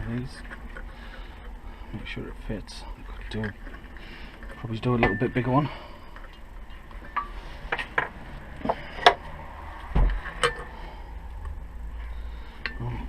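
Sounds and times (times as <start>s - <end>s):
metal discs clinking: 3.0s - 9.3s, 10.2s - 11.6s.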